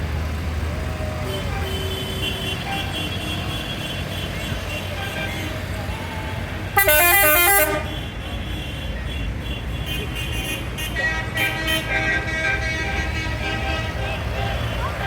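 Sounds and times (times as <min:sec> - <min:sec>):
low engine rumble: 0:00.0 - 0:15.0
musical vehicle horn: 0:06.7 - 0:15.0.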